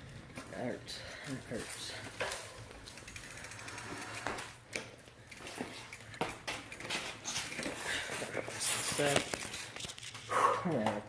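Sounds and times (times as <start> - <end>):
bicycle freewheel ticking: 0.9 - 9.6.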